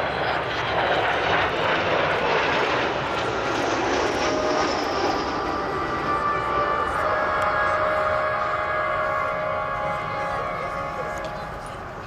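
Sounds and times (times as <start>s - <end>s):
jet engines roaring: 0.0s - 12.0s
jet whistling tone: 3.2s - 12.0s.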